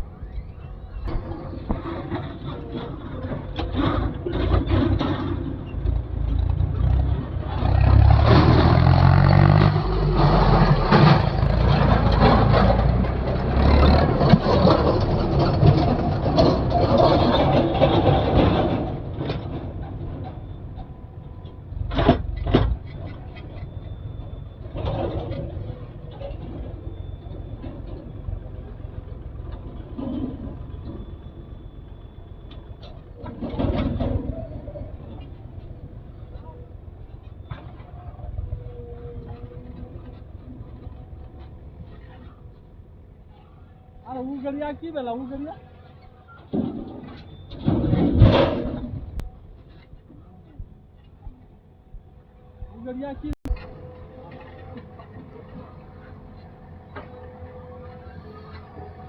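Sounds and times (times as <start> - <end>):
diesel engine revving under load: 0.0 - 44.1.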